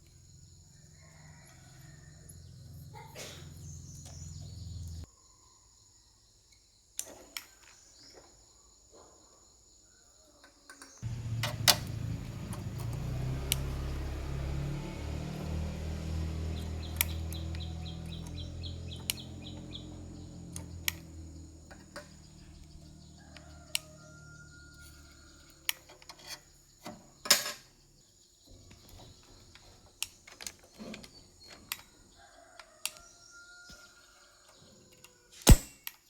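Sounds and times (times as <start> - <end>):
sharp clicks and knocks: 11.0 - 13.8
low hum: 11.0 - 23.0.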